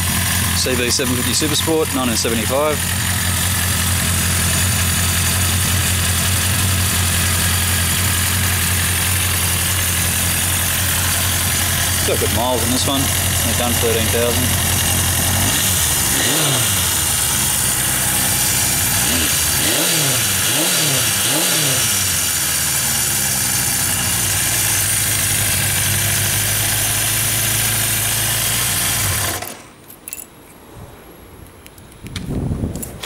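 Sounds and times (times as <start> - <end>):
motorcycle engine idling: 0.0 - 29.5.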